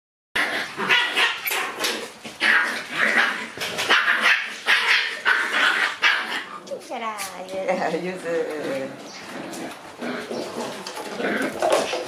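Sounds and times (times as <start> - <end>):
puppies yipping and barking: 0.4 - 6.7, 9.0 - 12.0.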